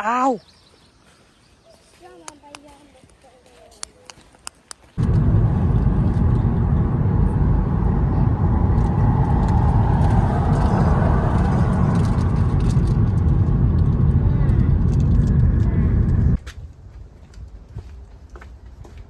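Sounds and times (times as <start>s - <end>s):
car engine and road noise: 5.0s - 16.4s.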